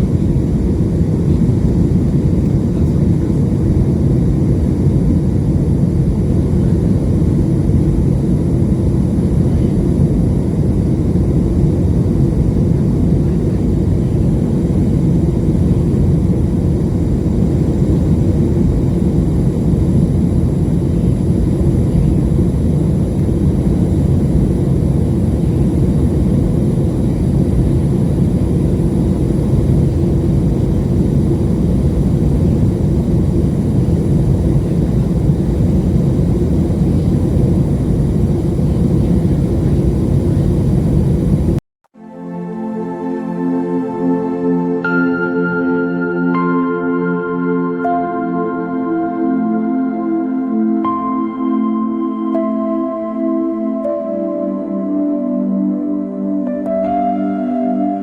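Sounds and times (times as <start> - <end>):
airplane cabin rumble: 0.0 - 41.6.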